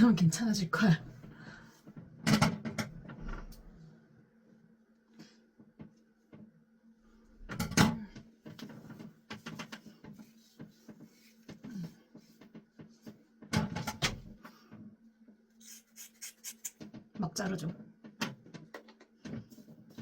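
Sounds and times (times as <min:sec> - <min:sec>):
scissors snipping hair: 0:15.6 - 0:16.8.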